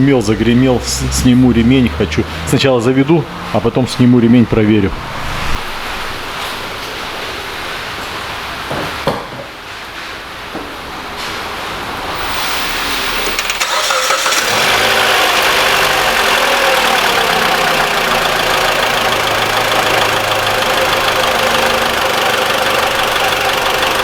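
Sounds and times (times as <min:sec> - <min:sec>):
car engine idling: 0:00.0 - 0:07.8, 0:12.2 - 0:24.0
car starter cranking: 0:12.2 - 0:24.0.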